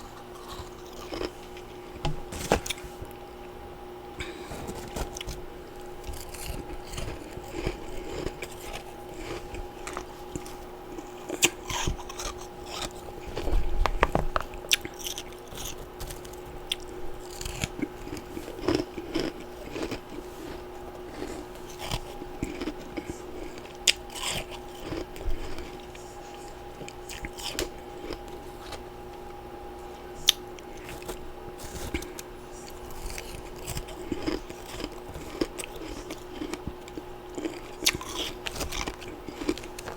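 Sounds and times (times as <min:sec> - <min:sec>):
person crunching ice: 0:00.0 - 0:01.7, 0:02.3 - 0:02.9, 0:04.2 - 0:25.8, 0:30.7 - 0:36.6, 0:37.3 - 0:39.9
faint steady hum: 0:00.0 - 0:39.9.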